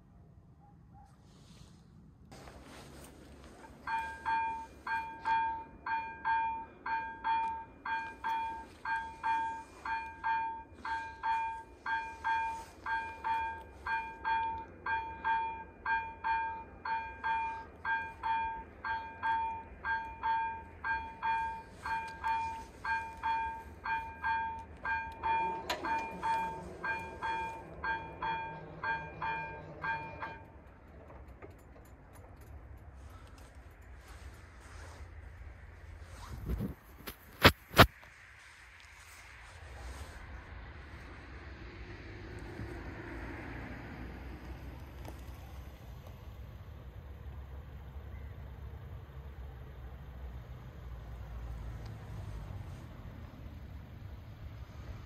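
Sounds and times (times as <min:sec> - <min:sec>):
level crossing warning bell: 0:02.4 - 0:35.0.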